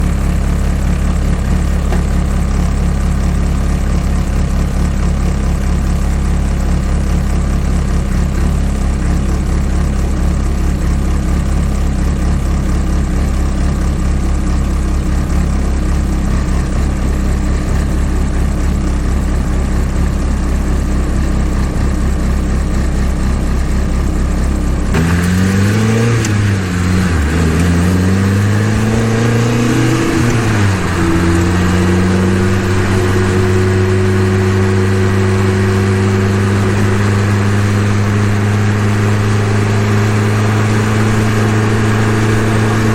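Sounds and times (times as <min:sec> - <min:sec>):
four-cylinder engine idling: 0:00.0 - 0:25.0.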